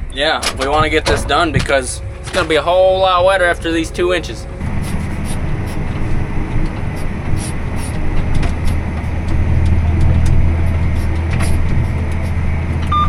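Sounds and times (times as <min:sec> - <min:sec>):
tractor engine under load: 0:00.0 - 0:13.0
light clicks and rattles: 0:00.3 - 0:04.6.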